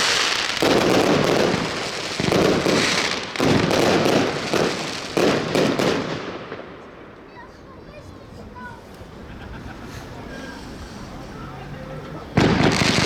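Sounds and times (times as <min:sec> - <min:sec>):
firework battery shots: 0:00.0 - 0:06.8, 0:12.4 - 0:13.0
firework crackling: 0:00.0 - 0:07.6, 0:12.3 - 0:13.0.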